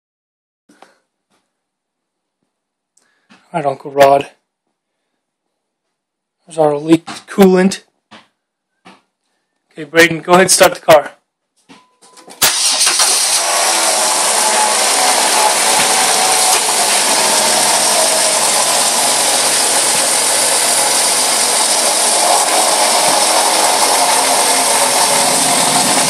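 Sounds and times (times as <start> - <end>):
car engine running: 12.4 - 26.0.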